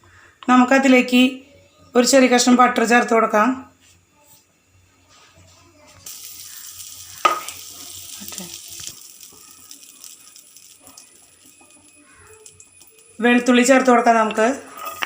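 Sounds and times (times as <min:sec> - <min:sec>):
butter sizzling in a frying pan: 0:06.0 - 0:14.2
utensil knocking on pan: 0:07.2 - 0:07.5.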